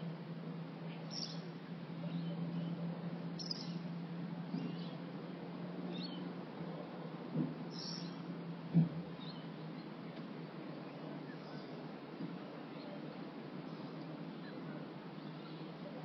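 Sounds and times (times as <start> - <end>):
small birds chirping: 0.9 - 6.4, 7.7 - 8.3, 9.1 - 10.1, 12.6 - 16.0.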